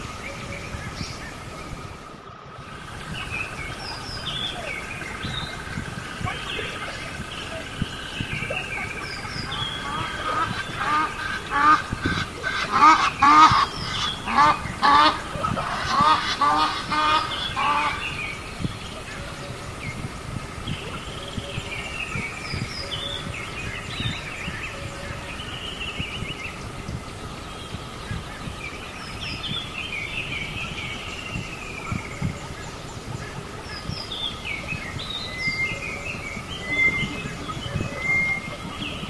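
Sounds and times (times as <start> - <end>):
birds chirping and calling: 0.0 - 39.0
steady faint tone: 0.0 - 39.0.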